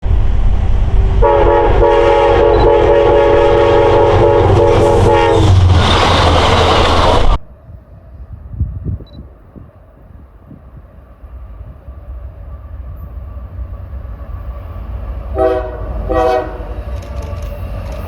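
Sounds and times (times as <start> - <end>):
heavy low rumble: 0.0 - 11.9
train rushing by: 0.0 - 18.0
train horn blasts: 1.2 - 5.6, 15.3 - 17.7.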